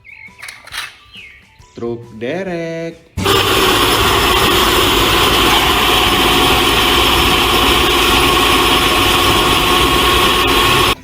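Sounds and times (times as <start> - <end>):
truck engine idling: 3.2 - 11.0.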